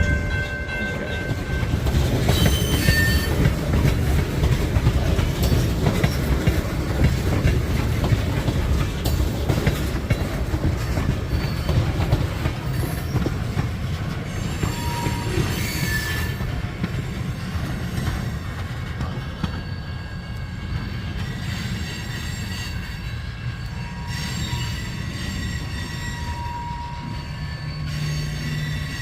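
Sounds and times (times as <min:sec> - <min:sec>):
train wheel clicks: 0:00.0 - 0:19.6
freight train cars rumbling past: 0:00.0 - 0:29.0
train wheel squeals: 0:00.0 - 0:29.0.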